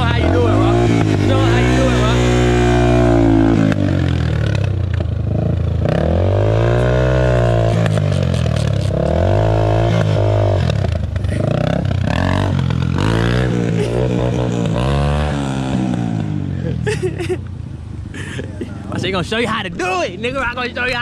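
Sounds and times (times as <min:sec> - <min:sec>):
dirt bike engine revving: 0:00.0 - 0:16.7.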